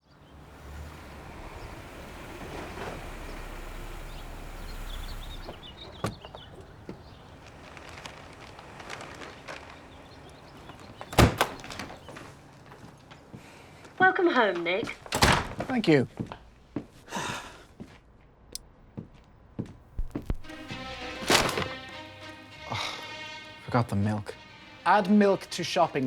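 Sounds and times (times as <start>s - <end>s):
door shutting with a bang: 0.4s - 12.3s, 15.0s - 15.8s, 20.0s - 22.2s
low steady rumble: 0.9s - 8.0s
light clicks and steps: 5.4s - 17.1s, 17.8s - 21.9s.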